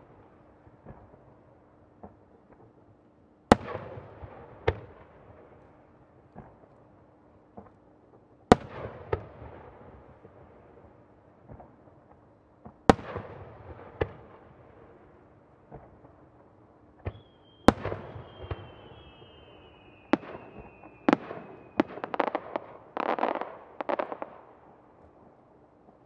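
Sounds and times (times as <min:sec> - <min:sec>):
firework whistling: 0:17.1 - 0:22.4
firework crackling: 0:17.4 - 0:24.4.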